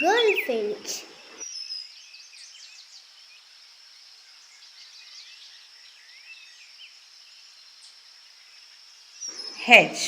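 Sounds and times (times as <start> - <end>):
bird twittering: 0.0 - 2.9, 9.2 - 10.0
high-pitched background hiss: 0.0 - 10.0.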